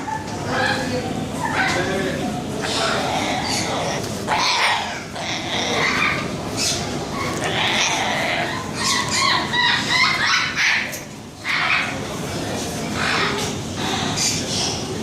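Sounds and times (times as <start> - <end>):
parrots screeching and squawking: 2.6 - 12.0, 13.0 - 14.8.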